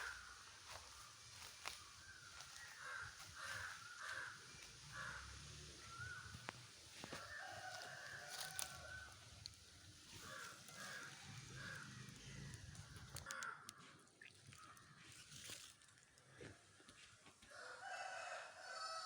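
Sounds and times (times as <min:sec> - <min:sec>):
birds calling harshly: 0:00.0 - 0:09.1, 0:10.0 - 0:14.0.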